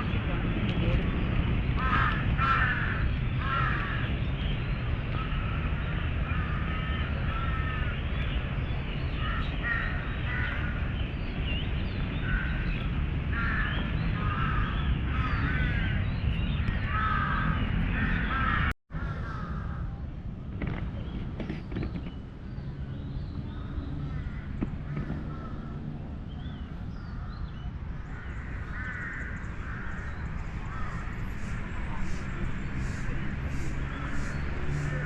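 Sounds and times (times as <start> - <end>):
low rumble of city noise: 0.0 - 35.0
crows cawing: 1.8 - 4.1, 5.2 - 8.0, 9.2 - 10.9, 12.2 - 16.0, 16.8 - 19.9, 23.6 - 25.9, 28.0 - 31.3.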